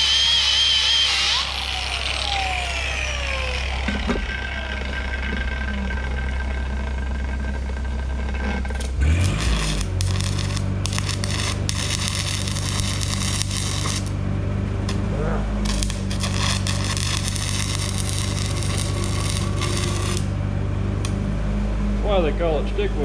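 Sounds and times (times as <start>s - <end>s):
steady low hum: 1.6s - 23.0s
welding arc crackling: 8.7s - 14.2s, 15.6s - 20.4s.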